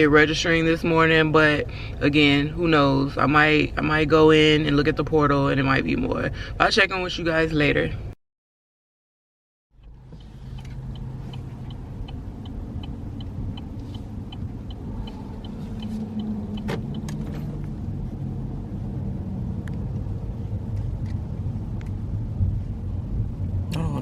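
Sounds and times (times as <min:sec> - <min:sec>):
car engine and road rumble: 0:00.0 - 0:08.2, 0:09.7 - 0:24.0
fast light ticking: 0:09.8 - 0:17.1.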